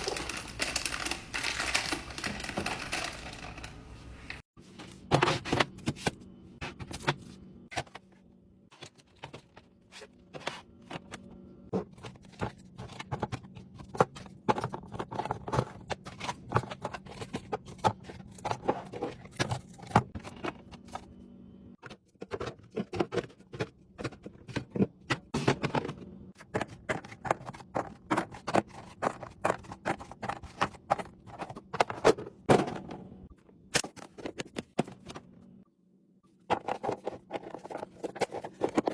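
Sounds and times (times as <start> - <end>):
food containers clicking and clattering: 0.0 - 4.4, 10.3 - 21.0, 21.8 - 33.1, 36.5 - 38.9.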